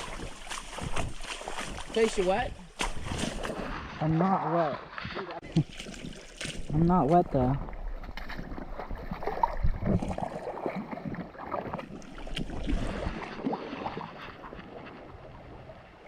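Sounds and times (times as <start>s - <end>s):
creek water gurgling: 0.0s - 16.0s
wind on microphone: 7.6s - 11.3s.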